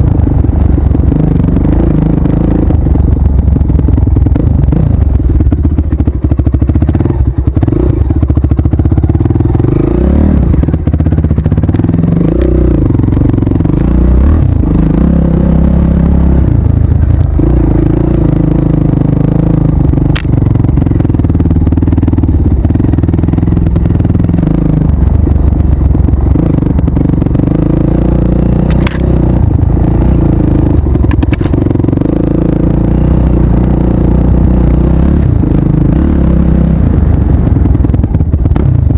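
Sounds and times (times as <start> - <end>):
motorcycle engine running: 0.0 - 38.9
sharp clicks and rattles: 19.8 - 21.0, 28.5 - 32.2.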